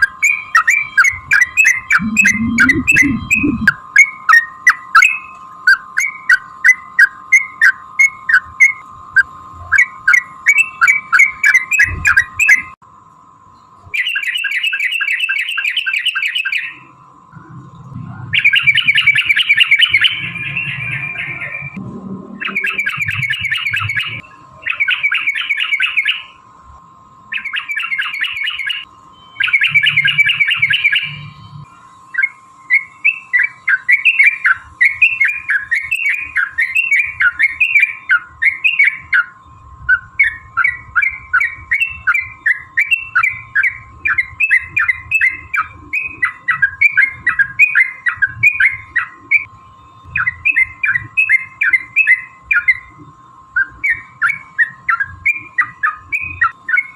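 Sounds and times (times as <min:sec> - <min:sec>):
bulbul calling: 0:01.4 - 0:03.8
steady faint tone: 0:02.0 - 0:03.7.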